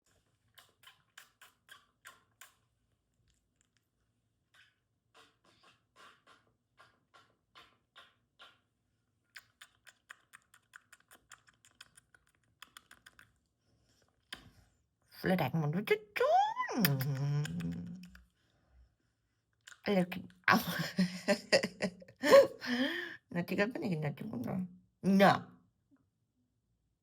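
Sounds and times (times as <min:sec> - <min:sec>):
faint quick irregular clicks: 0:09.3 - 0:13.4.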